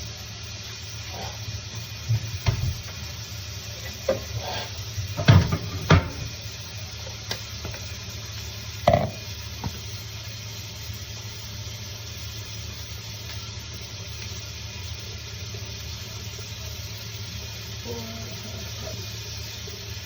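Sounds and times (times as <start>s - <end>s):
chicken sizzling in oil: 0.0s - 20.0s
utensil stirring and knocking pan: 3.7s - 7.9s, 8.8s - 9.8s.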